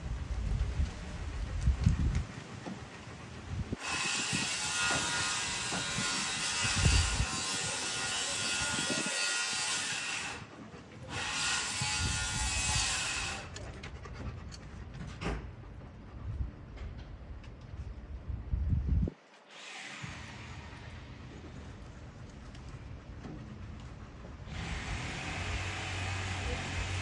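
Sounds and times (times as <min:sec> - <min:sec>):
power saw cutting: 0:03.7 - 0:13.6, 0:19.5 - 0:21.1, 0:24.5 - 0:27.0.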